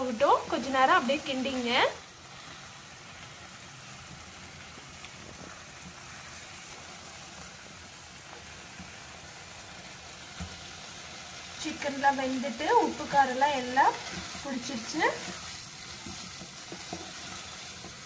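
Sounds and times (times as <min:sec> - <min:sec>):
food sizzling in a pan: 0:00.0 - 0:18.0
spatula knocking: 0:15.2 - 0:18.0.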